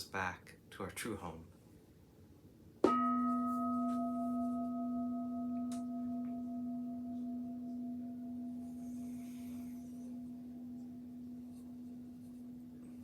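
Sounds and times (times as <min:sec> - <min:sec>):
singing bowl ringing: 0:02.9 - 0:13.0.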